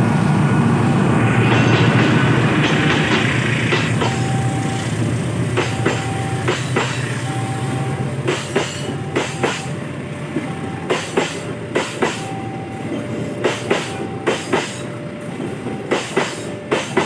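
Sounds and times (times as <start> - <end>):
train wheels clicking over rail joints: 1.4 - 7.3, 8.2 - 17.0.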